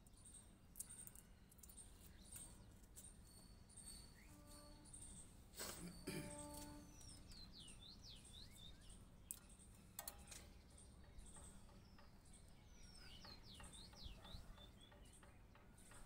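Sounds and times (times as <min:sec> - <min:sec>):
bird song whistled notes: 0:03.3 - 0:05.4, 0:06.0 - 0:09.8, 0:10.6 - 0:15.3.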